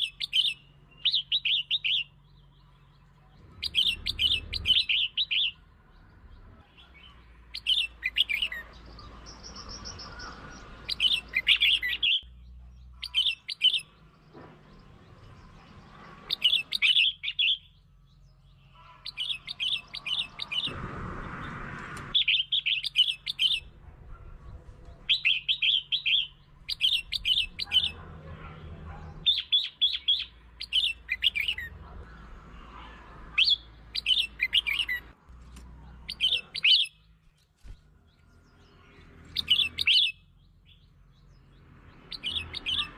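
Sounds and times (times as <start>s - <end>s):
bulbul singing: 0.0s - 32.4s, 33.1s - 42.9s
brief rushing noise: 20.5s - 22.2s.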